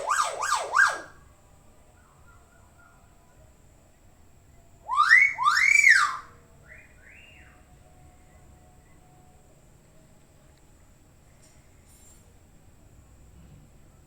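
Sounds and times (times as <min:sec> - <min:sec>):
myna whistling: 0:00.0 - 0:01.2, 0:04.9 - 0:07.6.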